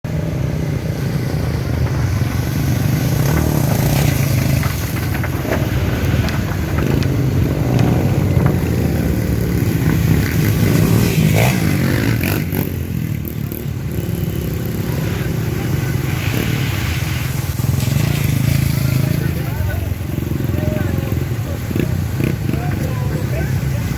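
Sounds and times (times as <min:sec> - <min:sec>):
motorcycle engine running: 0:00.1 - 0:16.6, 0:17.5 - 0:23.4.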